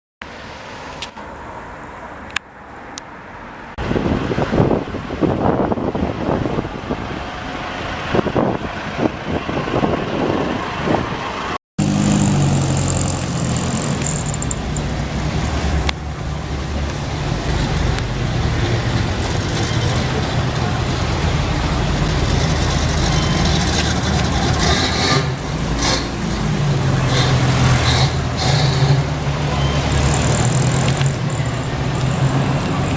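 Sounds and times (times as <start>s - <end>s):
vehicles passing: 0.2s - 32.9s.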